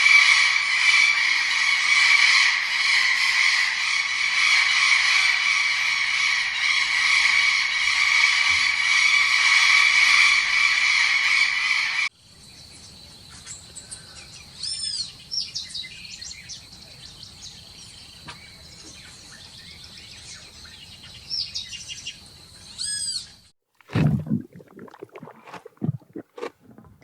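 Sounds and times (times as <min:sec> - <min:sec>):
birds chirping: 0:12.4 - 0:23.5.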